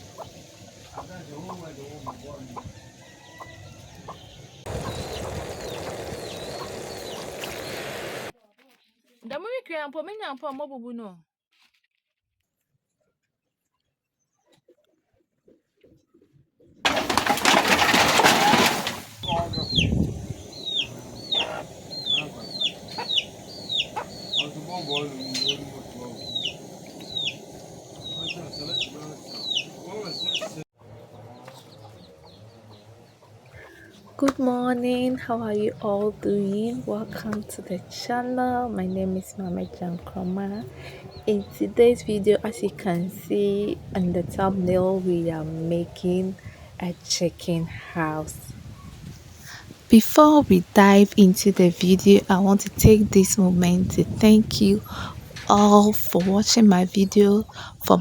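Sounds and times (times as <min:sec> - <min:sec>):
chickens clucking: 0:00.0 - 0:08.1, 0:16.9 - 0:34.3
high chirps: 0:19.2 - 0:30.6.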